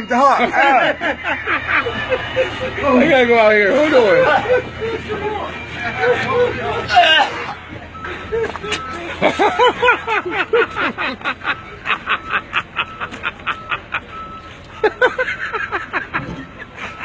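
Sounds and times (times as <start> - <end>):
man making high-pitched cries: 4.0 - 7.6.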